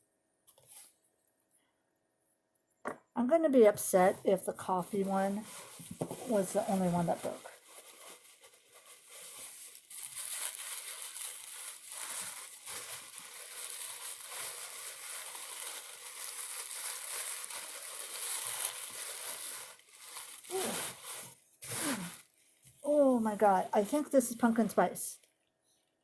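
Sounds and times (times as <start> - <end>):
person speaking: 3.2 - 5.5, 6.1 - 7.5, 22.8 - 25.2
crinkly packaging rustling: 4.0 - 25.4.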